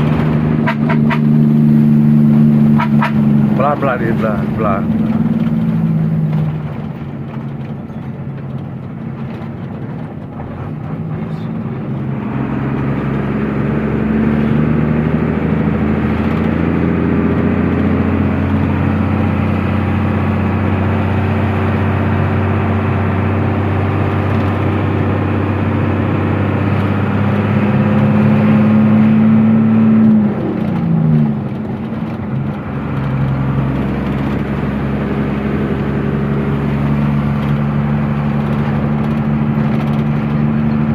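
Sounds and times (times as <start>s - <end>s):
truck engine running: 0.0s - 40.9s.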